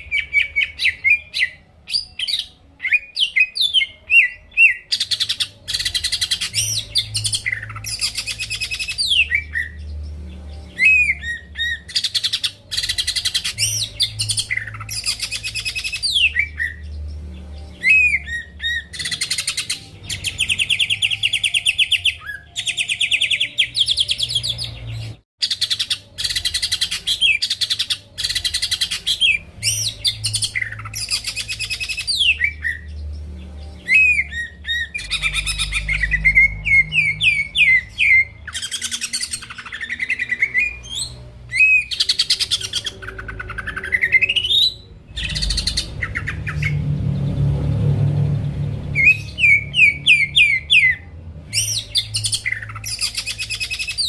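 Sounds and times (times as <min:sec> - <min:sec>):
bird singing whistles and trills: 0:00.0 - 0:46.8, 0:48.2 - 0:54.0.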